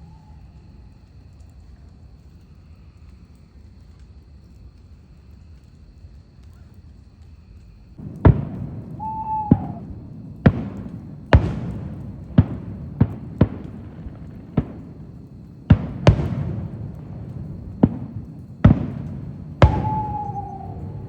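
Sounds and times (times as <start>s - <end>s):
falling firework whistle: 8.0s - 21.0s
fireworks bangs: 8.0s - 21.0s.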